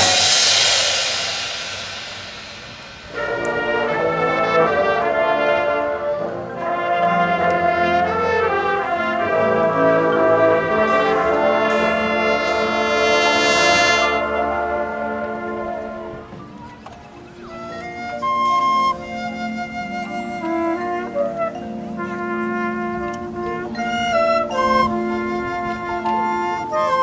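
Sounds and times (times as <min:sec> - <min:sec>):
brass section playing held chords: 0:00.0 - 0:16.4.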